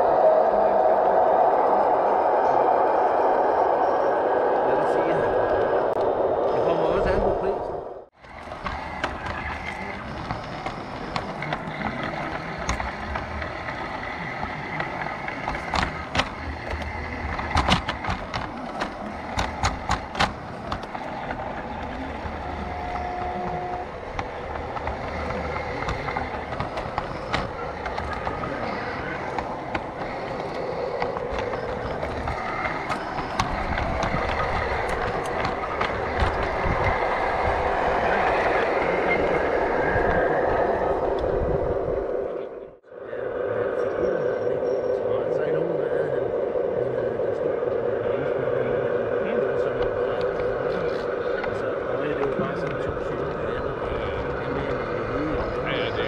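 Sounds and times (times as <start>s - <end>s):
toy train wheels clicking on rails: 8.2s - 40.2s.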